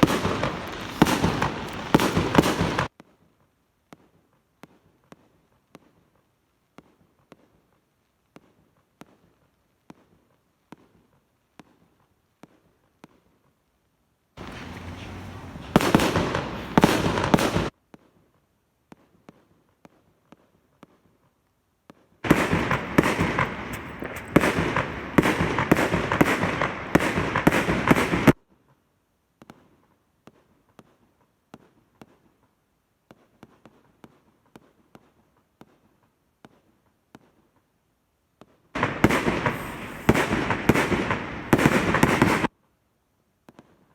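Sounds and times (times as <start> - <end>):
fireworks crackling and banging: 0.0 - 6.2, 14.4 - 18.2, 21.9 - 28.4, 38.8 - 42.5
faint fireworks pops: 0.0 - 13.6, 14.4 - 37.7, 38.4 - 42.6, 43.4 - 43.9.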